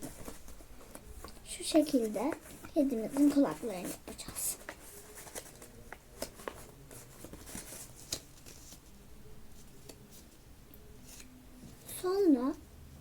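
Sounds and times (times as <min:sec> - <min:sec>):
paper being folded and creased: 0:00.0 - 0:09.0.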